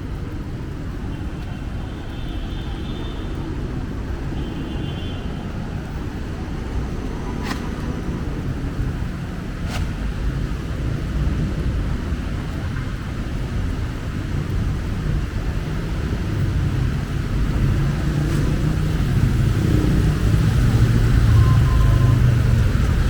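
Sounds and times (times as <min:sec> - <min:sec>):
vehicle engine rumbling: 0:05.5 - 0:14.2.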